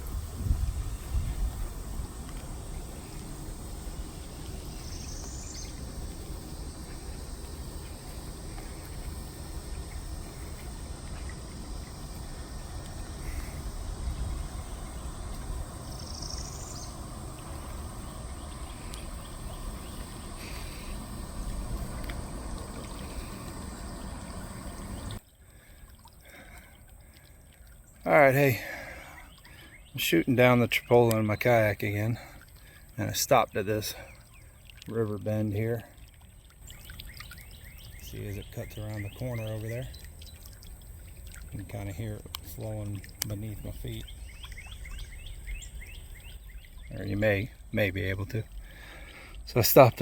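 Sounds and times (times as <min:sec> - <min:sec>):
high insect drone: 0:00.0 - 0:25.2
low rumbling noise: 0:00.0 - 0:25.2
faint ticks: 0:12.0 - 0:13.6, 0:18.1 - 0:25.2, 0:39.6 - 0:44.6.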